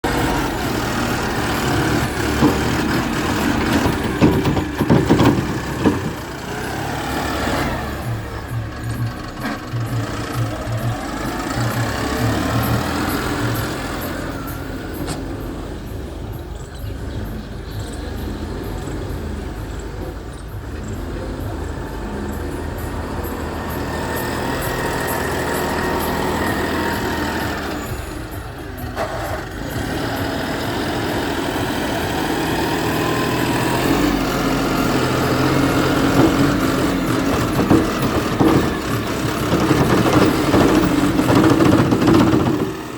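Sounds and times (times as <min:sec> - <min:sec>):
diesel engine running: 0:00.0 - 0:42.9
knocks and thuds: 0:02.0 - 0:06.6, 0:35.3 - 0:42.9.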